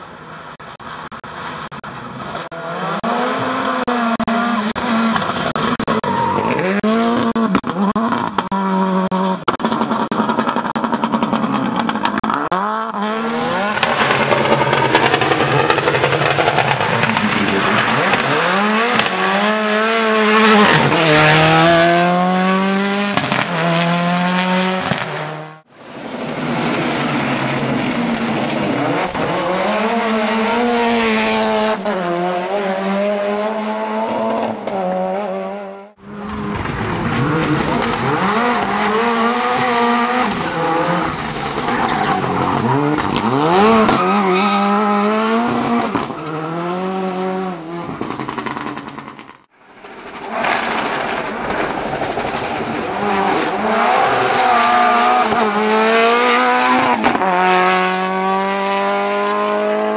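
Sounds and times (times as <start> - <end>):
rally car engine revving: 0.6 - 59.9
tyres squealing and skidding: 2.6 - 10.6, 11.4 - 21.7, 26.5 - 32.3, 36.0 - 47.0, 47.6 - 48.8, 52.8 - 58.0.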